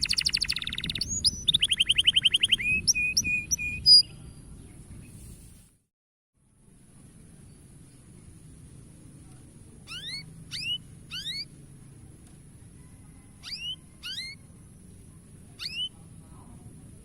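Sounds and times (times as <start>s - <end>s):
low background hum: 6.4s - 17.0s
canary call notes: 9.9s - 11.5s, 13.3s - 14.5s, 15.6s - 16.0s.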